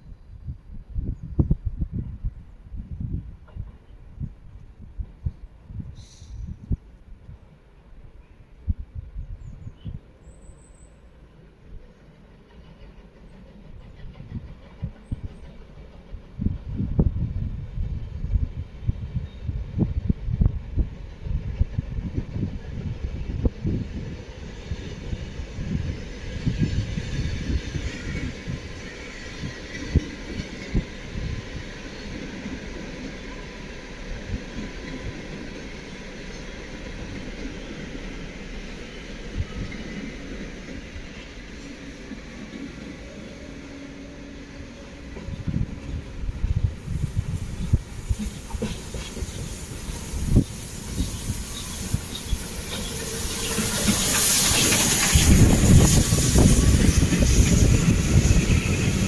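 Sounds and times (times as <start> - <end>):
train rolling on track: 0.0 - 59.0
steam hissing: 5.9 - 6.7, 23.4 - 59.0.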